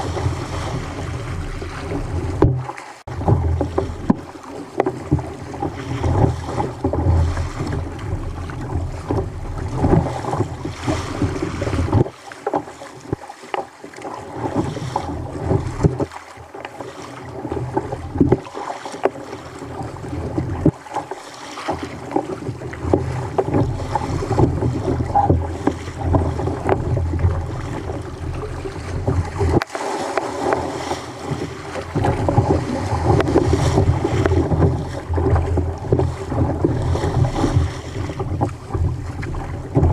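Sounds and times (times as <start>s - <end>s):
sea water sloshing and splashing: 0.0s - 39.9s
wind on microphone: 21.8s - 39.9s.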